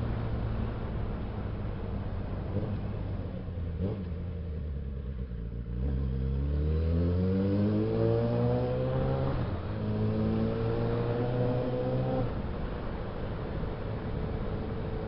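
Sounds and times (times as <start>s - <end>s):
motorcycle engine revving: 2.4s - 12.4s.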